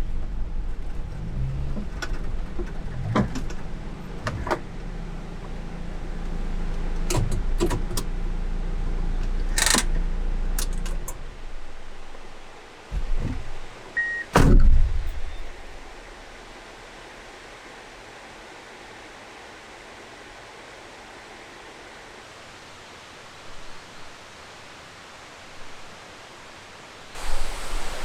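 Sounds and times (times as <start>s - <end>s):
truck engine humming: 0.0s - 19.6s
scattered clicks and knocks: 7.1s - 8.1s, 9.6s - 10.0s.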